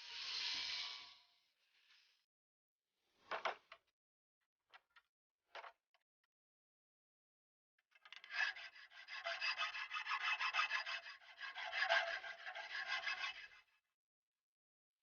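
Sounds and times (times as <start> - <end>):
hand abrading rasping strokes: 8.2 - 13.6.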